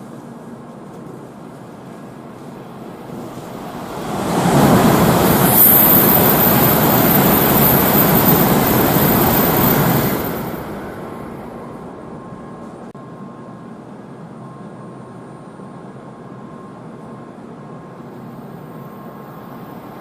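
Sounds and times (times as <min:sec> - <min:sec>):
high-speed train passing: 0:00.0 - 0:20.0
thin high whistle: 0:05.2 - 0:11.4.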